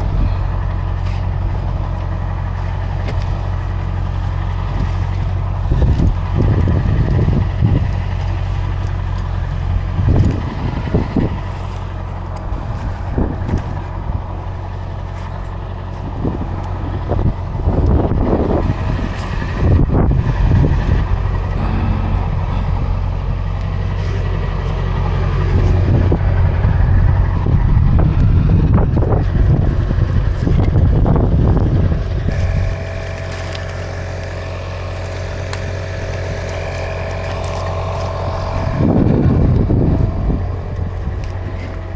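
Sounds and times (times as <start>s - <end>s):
truck engine droning: 0.0s - 41.9s.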